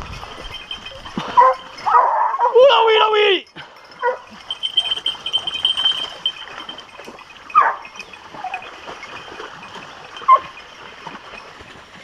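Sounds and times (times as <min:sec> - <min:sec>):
dog yelping: 0:01.2 - 0:03.0, 0:04.0 - 0:05.6, 0:07.5 - 0:08.6, 0:10.2 - 0:10.5
hound howling: 0:01.3 - 0:03.2.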